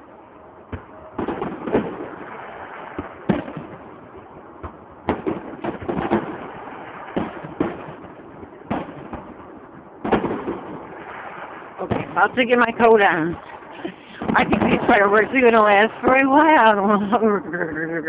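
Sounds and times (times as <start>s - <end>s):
fireworks bangs and pops: 0.7s - 18.0s.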